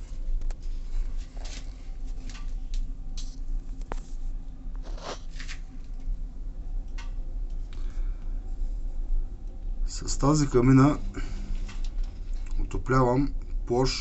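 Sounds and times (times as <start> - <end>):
light clicks and rustles: 0.2 - 4.2.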